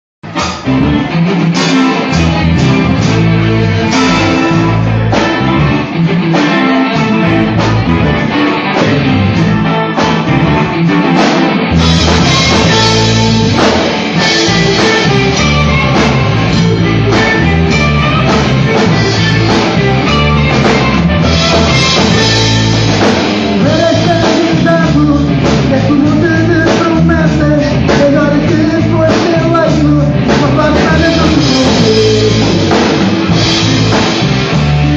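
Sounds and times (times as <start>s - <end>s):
rock music: 0.2s - 34.9s
person singing: 14.2s - 33.4s.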